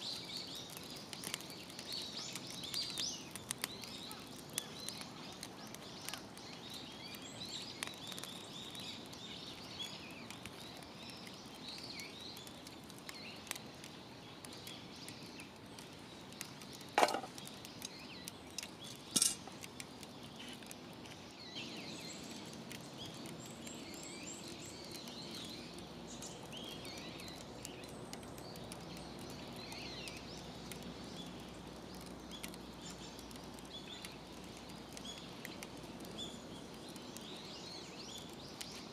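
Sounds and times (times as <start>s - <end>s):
birds chirping: 0.0s - 38.9s
faint crackles: 0.0s - 38.9s
sharp clinks: 19.1s - 19.4s.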